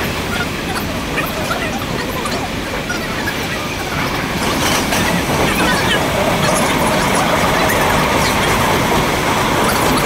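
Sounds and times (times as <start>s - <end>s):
train rumble with wheel noise: 0.0s - 10.0s.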